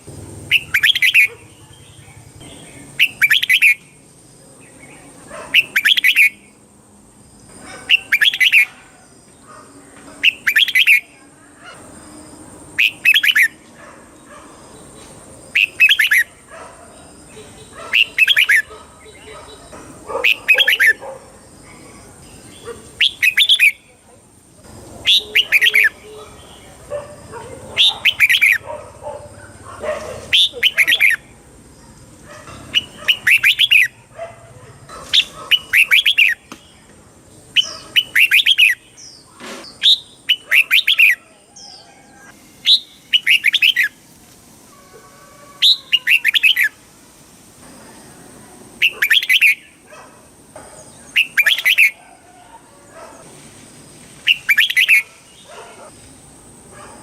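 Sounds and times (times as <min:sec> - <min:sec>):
bulbul singing: 0:00.0 - 0:06.6, 0:07.3 - 0:09.0, 0:10.0 - 0:13.6, 0:14.2 - 0:31.4, 0:32.5 - 0:34.1, 0:35.1 - 0:41.9, 0:42.6 - 0:44.0, 0:45.6 - 0:46.8, 0:48.8 - 0:49.9, 0:50.6 - 0:52.0, 0:54.2 - 0:55.9.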